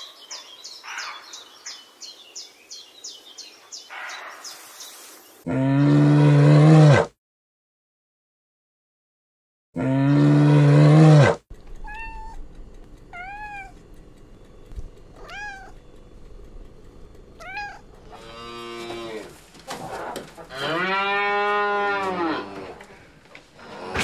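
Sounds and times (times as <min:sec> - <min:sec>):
cow mooing: 0:05.5 - 0:07.1, 0:09.8 - 0:12.4, 0:17.4 - 0:24.0
cat meowing: 0:11.8 - 0:12.5, 0:13.1 - 0:13.8, 0:15.1 - 0:15.8, 0:17.4 - 0:17.9
bear calling: 0:15.1 - 0:15.9, 0:17.4 - 0:24.0.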